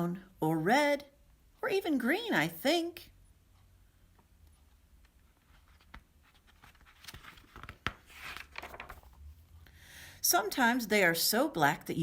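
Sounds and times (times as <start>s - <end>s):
paper rustling: 5.0s - 9.3s.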